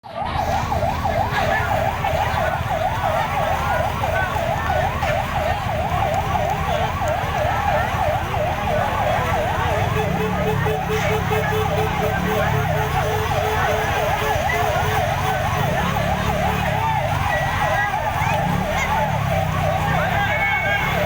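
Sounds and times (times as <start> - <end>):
emergency sirens yelping: 0.0 - 21.0.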